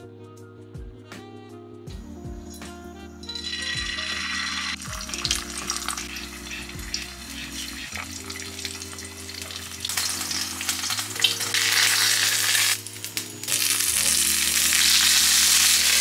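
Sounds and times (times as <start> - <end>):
food sizzling in hot oil: 3.3 - 16.0.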